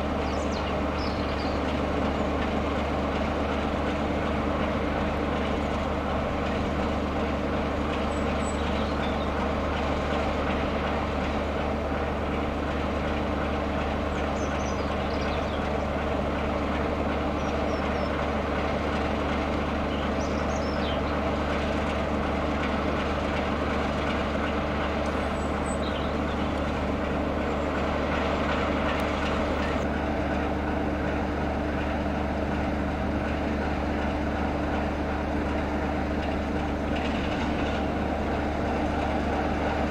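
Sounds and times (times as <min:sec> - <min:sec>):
diesel locomotive engine running: 0:00.0 - 0:39.9.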